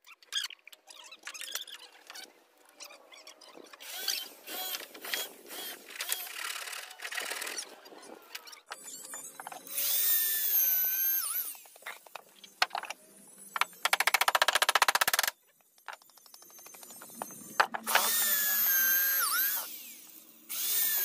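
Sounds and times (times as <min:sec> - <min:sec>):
power drill motor whine: 0:03.8 - 0:07.6, 0:08.8 - 0:11.8, 0:16.1 - 0:21.0.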